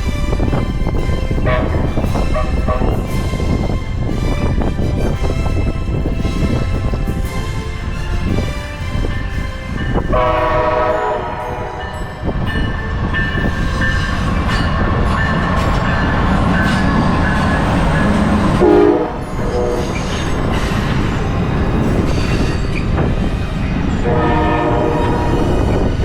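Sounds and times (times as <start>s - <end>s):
train rumbling and clattering: 0.0s - 26.0s
locomotive air horn: 0.1s - 7.0s, 10.0s - 12.2s, 18.5s - 20.1s, 24.0s - 25.8s.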